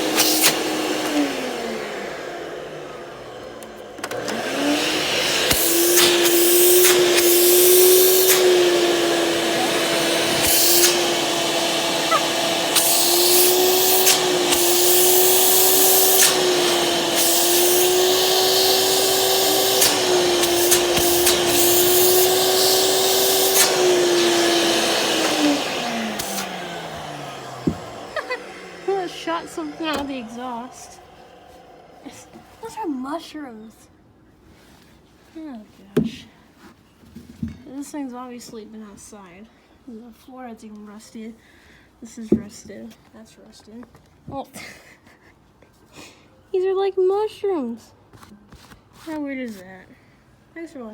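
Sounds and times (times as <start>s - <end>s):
vacuum cleaner motor running: 0.0s - 33.3s.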